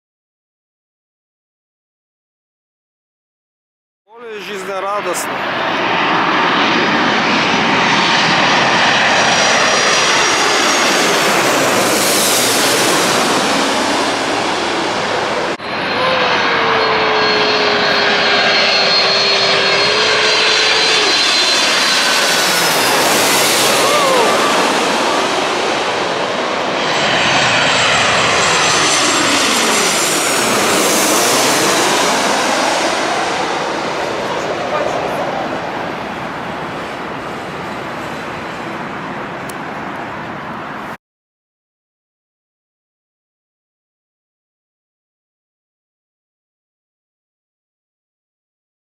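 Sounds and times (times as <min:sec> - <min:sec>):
airliner passing low overhead: 0:04.1 - 0:41.0.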